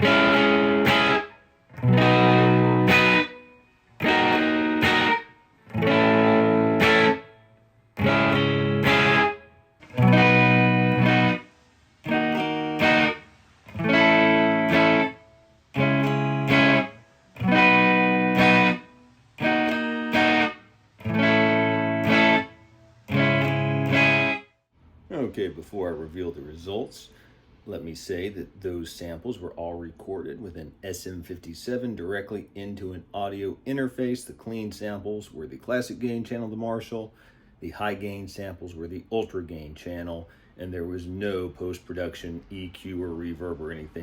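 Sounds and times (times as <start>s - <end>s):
electric guitar chords: 0.0s - 24.5s.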